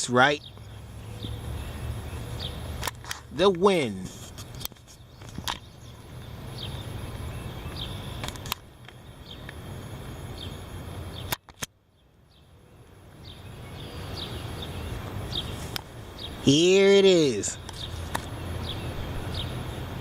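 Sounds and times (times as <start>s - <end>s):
wind gusting over microphone: 0.0s - 11.4s, 13.2s - 20.0s
bird chirping: 0.0s - 20.0s
sharp clicks: 2.7s - 3.6s, 7.7s - 9.6s, 11.3s - 11.8s.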